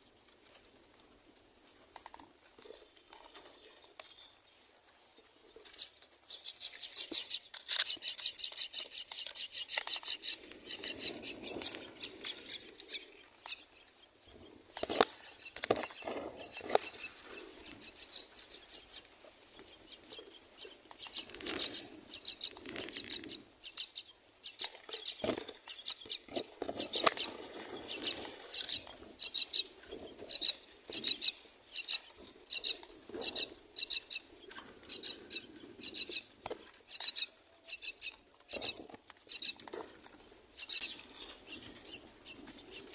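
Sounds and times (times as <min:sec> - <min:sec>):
nestlings begging chirps: 0:05.8 - 0:13.9, 0:15.2 - 0:19.1, 0:19.7 - 0:29.7, 0:30.3 - 0:34.3.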